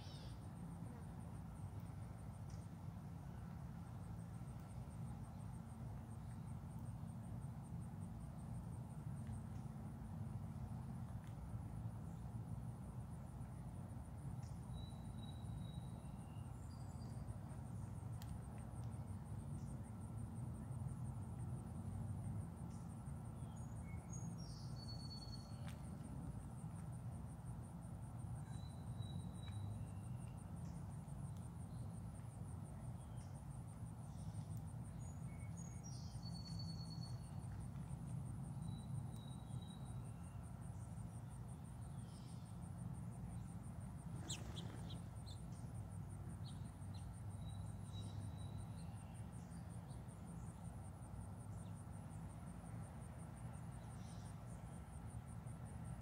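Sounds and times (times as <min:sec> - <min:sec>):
bird chirps: 0:00.0 - 0:00.4, 0:34.2 - 0:37.4, 0:44.2 - 0:45.6
insects trilling: 0:00.0 - 0:01.7.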